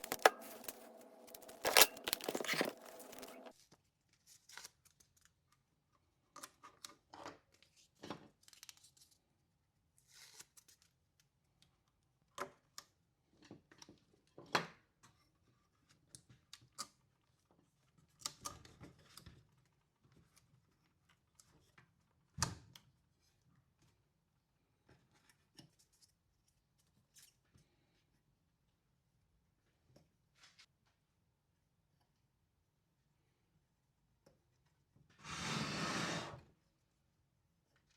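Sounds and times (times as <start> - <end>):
tool clicks and handling noises: 0.0 - 3.5.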